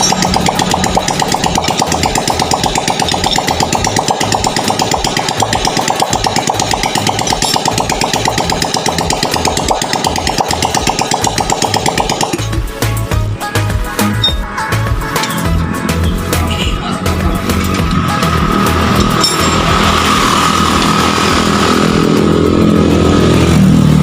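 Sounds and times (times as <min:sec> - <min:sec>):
small motorcycle engine running: 0:00.0 - 0:12.3, 0:17.4 - 0:24.0.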